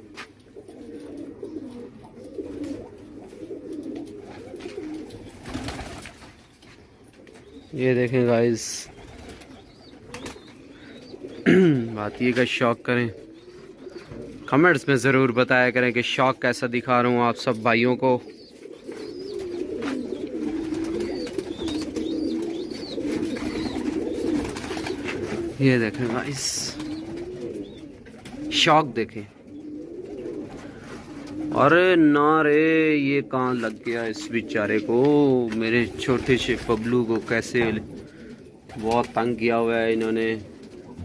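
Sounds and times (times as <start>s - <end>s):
pigeons cooing: 0.0s - 41.0s.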